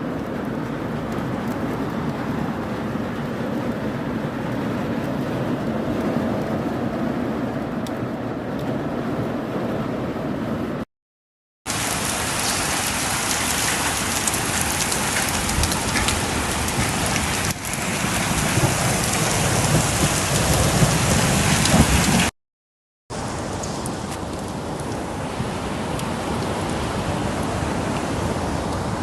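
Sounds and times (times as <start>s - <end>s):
heavy rain and hail pelting: 0.0s - 6.3s, 11.7s - 22.3s, 23.1s - 29.0s.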